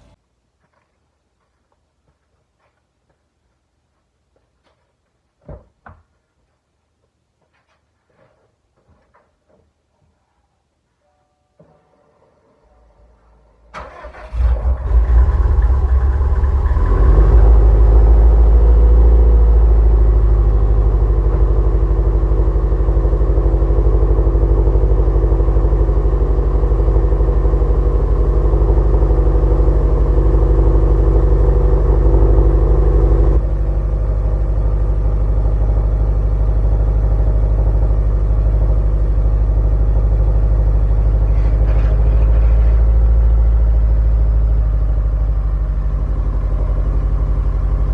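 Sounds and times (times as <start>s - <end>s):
car engine idling: 13.8s - 47.9s.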